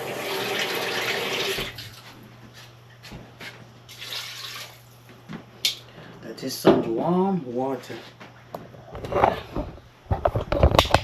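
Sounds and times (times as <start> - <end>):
water pouring into a pot: 3.9 - 4.9.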